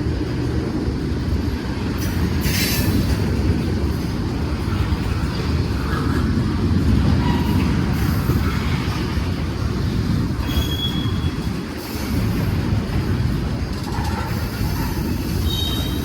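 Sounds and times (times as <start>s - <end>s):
train wheels rumbling on rails: 0.0s - 16.0s
high-pitched wheel squeal: 10.4s - 11.5s, 14.0s - 16.0s.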